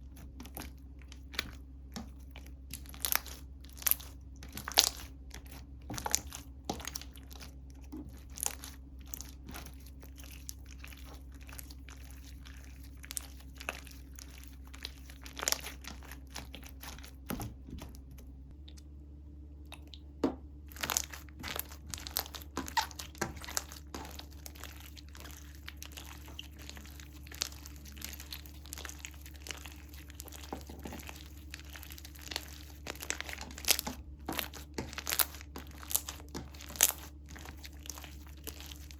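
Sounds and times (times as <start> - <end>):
slime squeezed by hand: 20.7 - 38.9.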